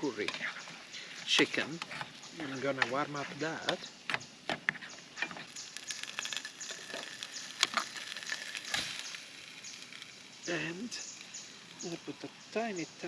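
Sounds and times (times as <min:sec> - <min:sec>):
food sizzling in a pan: 0:00.0 - 0:13.0
packet and cookware rustles: 0:05.2 - 0:09.3.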